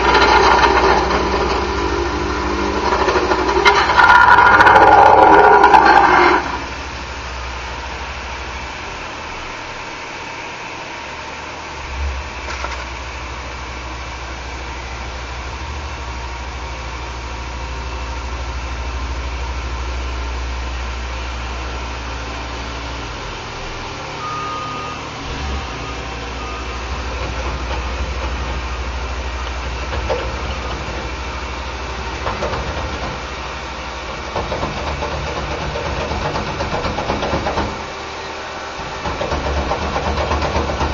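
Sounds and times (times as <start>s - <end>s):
heavy engines running at low revs: 0.0s - 40.9s
faint high beeps: 24.2s - 26.8s.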